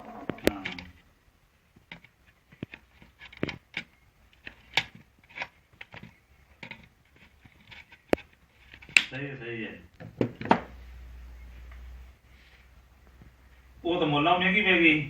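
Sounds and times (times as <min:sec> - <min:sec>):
clicks and knocks of tools and plastic: 0:01.7 - 0:09.2.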